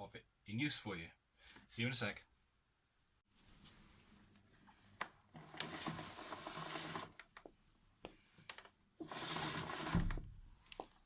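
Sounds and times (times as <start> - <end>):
scraping and rubbing of hose: 5.3 - 7.5, 9.0 - 10.2.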